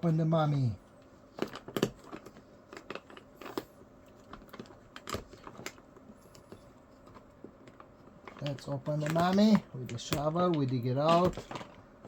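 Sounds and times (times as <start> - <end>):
packaging crinkling: 1.3 - 11.9.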